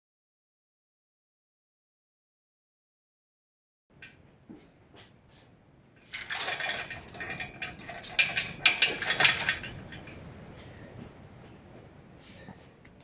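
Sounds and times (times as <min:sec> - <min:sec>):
metal clinking and rattling: 0:06.0 - 0:10.2.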